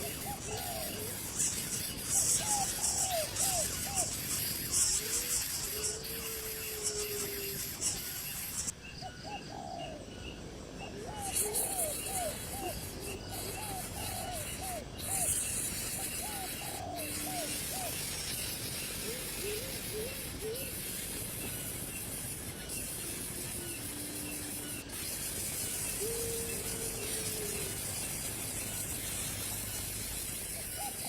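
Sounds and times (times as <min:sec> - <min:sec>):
high-pitched buzzing hiss: 0:00.0 - 0:08.8, 0:11.1 - 0:31.0
bird calling: 0:22.9 - 0:29.8.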